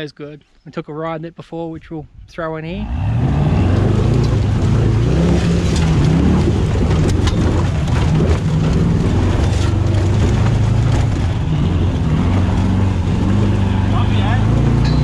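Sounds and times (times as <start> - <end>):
engine running inside cab: 2.9 - 15.0
sharp clicks and rattles: 3.7 - 13.5.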